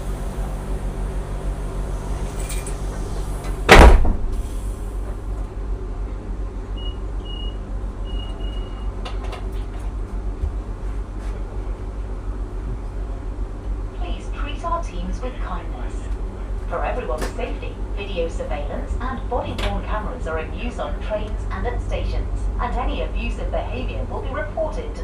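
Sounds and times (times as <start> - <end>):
train low hum: 0.0 - 25.0
door warning beeps: 6.8 - 9.0.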